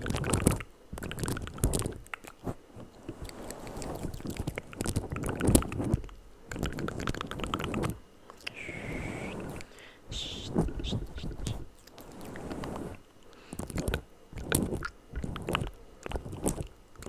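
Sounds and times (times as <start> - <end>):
wet mouth clicks and smacks: 0.2 - 2.4.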